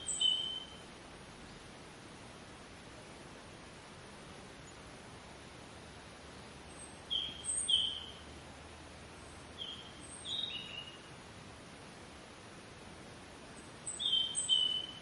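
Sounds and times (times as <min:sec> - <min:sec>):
small bird chirping: 0:00.0 - 0:00.8, 0:06.4 - 0:08.3, 0:09.2 - 0:11.1, 0:13.6 - 0:15.0
outdoor hiss: 0:00.0 - 0:15.0.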